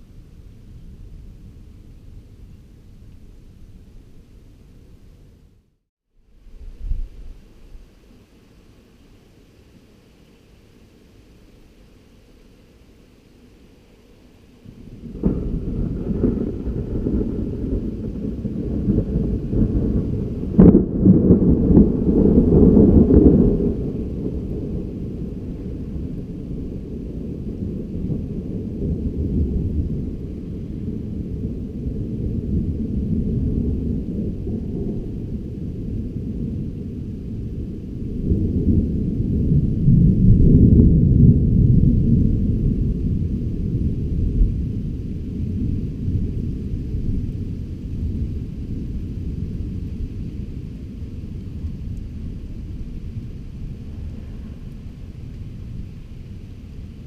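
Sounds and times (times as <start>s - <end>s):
thunder rolling: 14.6s - 57.0s.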